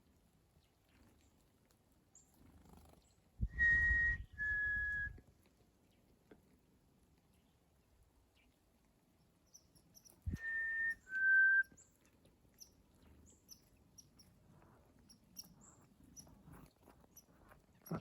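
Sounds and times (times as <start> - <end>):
small birds chipping: 0.1 - 3.4, 5.7 - 18.0
person whistling two-note song: 3.5 - 5.1, 10.4 - 11.6.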